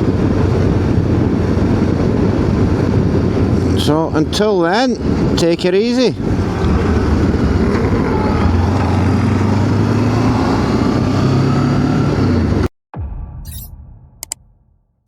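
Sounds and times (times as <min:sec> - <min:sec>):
road noise: 0:00.0 - 0:12.7
motorcycle engine cruising: 0:05.0 - 0:12.7.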